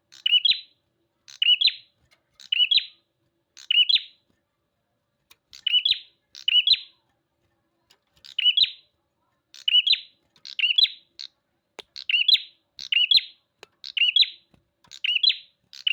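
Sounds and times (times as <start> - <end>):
bird chirping sharply: 11.9 - 15.9.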